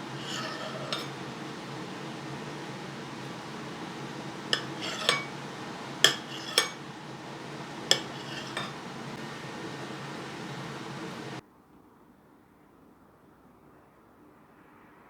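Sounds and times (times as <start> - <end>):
background hum: 0.0 - 11.4
cutlery clinking on plate: 0.1 - 1.4, 4.5 - 6.9, 7.8 - 9.1.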